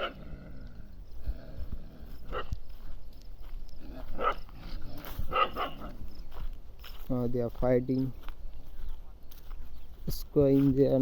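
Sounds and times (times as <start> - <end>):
dogs barking: 0.0 - 0.6, 1.5 - 2.6, 3.8 - 6.1.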